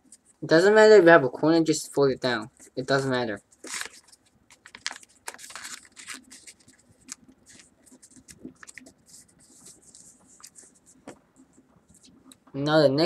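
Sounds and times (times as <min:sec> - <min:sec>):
paper being folded and creased: 0:02.6 - 0:11.2.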